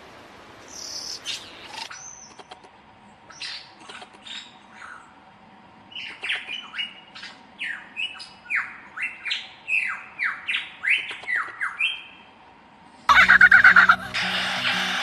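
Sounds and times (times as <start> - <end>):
bird squawking calls: 13.1 - 15.0.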